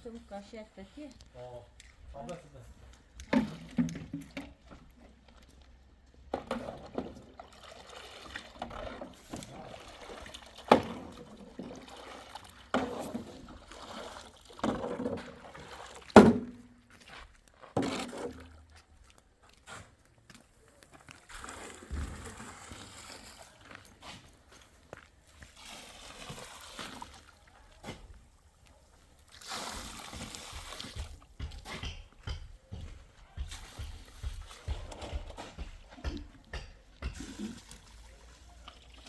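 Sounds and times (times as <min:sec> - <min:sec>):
water splashing in strokes: 0:06.6 - 0:16.6, 0:25.2 - 0:32.3.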